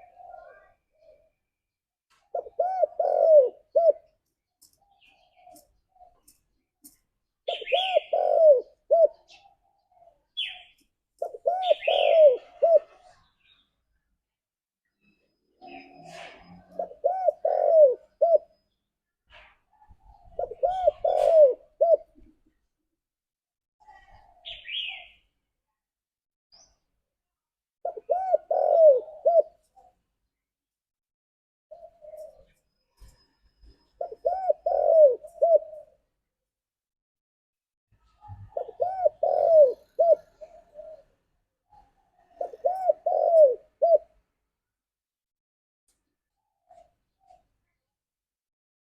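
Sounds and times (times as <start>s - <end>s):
dove cooing: 0.0s - 1.4s, 2.3s - 4.2s, 7.4s - 13.6s, 15.6s - 18.6s, 19.3s - 22.4s, 27.8s - 30.0s, 31.7s - 36.2s, 38.1s - 44.2s.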